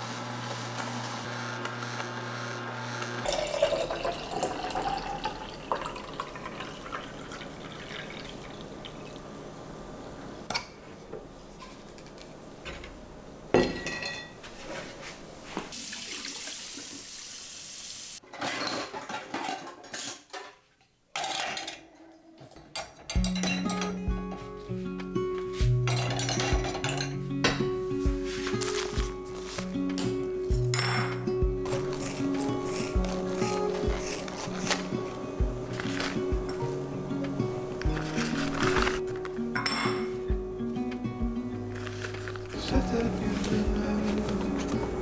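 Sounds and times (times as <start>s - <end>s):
dishes and utensils clinking: 13.6s - 14.4s, 18.2s - 24.0s, 25.6s - 27.8s, 30.0s - 34.8s, 37.9s - 40.2s.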